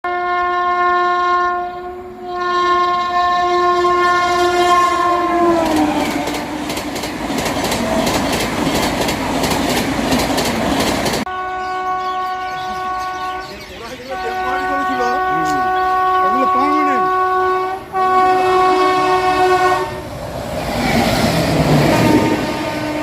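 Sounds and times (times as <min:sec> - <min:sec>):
train horn: 0:00.0 - 0:06.8, 0:11.2 - 0:20.2, 0:21.7 - 0:23.0
train coaches rushing past: 0:04.2 - 0:11.3, 0:18.2 - 0:23.0
wheels clacking over rail joints: 0:05.5 - 0:11.3.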